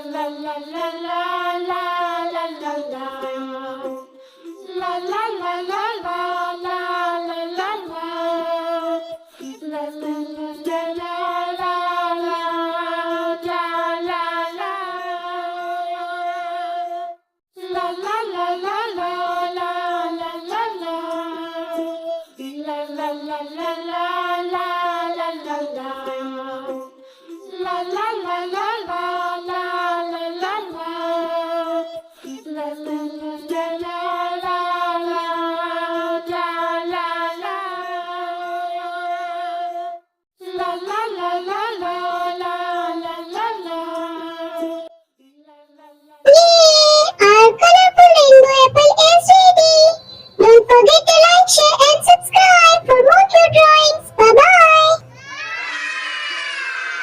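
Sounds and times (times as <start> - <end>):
child-like voice singing: 46.3 - 56.5.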